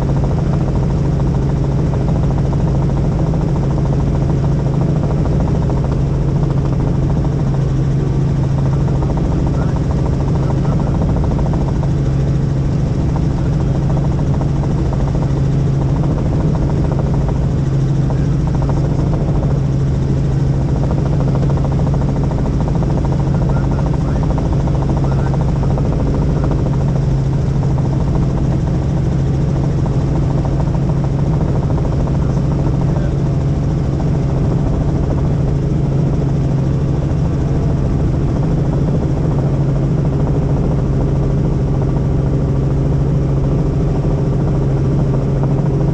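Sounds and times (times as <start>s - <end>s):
helicopter rotor and engine drone: 0.0s - 45.9s.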